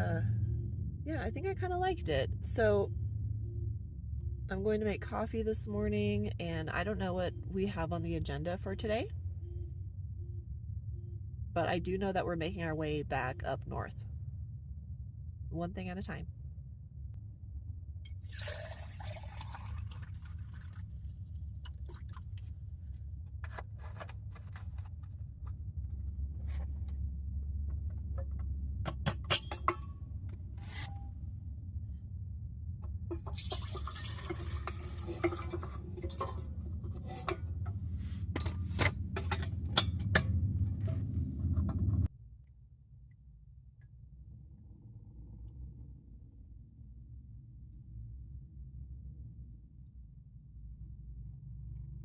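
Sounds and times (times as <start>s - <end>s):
steady low hum: 0.0s - 52.0s
water pouring into container: 18.1s - 22.5s, 33.1s - 36.5s
cups clinking: 33.1s - 37.4s.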